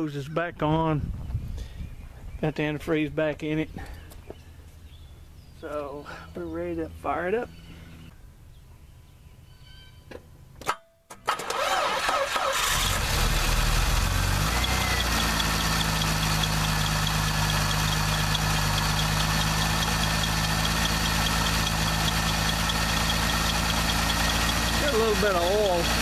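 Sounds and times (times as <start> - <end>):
car engine cranking and idling: 11.1 - 26.0.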